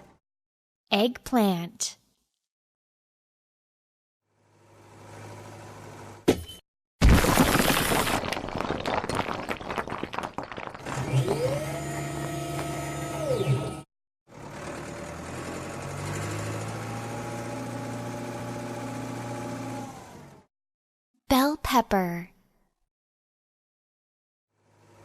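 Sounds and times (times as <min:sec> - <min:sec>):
shattering crash with crackling: 0:07.0 - 0:11.1.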